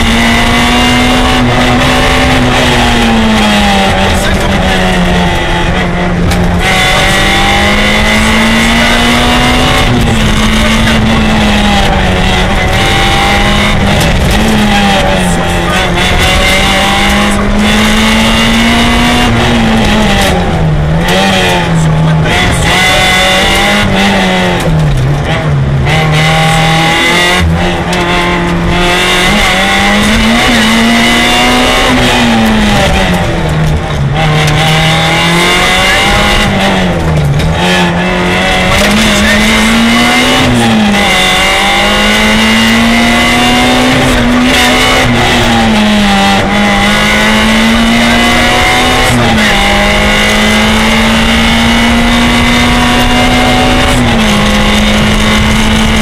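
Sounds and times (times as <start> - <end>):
rally car engine at high revs: 0.0 - 56.0.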